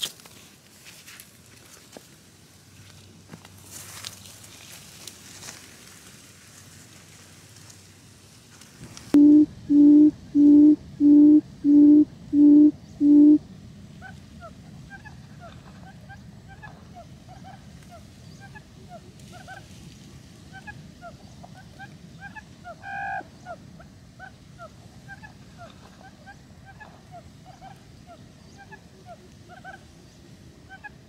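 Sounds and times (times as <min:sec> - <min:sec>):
bird deep hooting call: 0:09.2 - 0:13.4.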